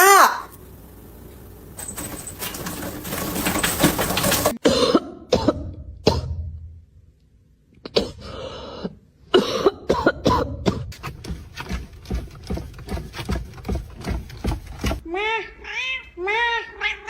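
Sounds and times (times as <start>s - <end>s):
person coughing: 4.6s - 6.4s, 7.9s - 10.9s.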